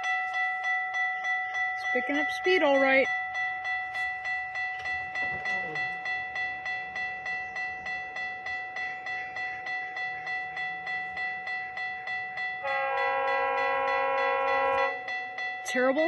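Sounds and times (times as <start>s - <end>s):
crossing warning bell ringing: 0.0s - 16.0s
train horn blast: 12.6s - 15.1s.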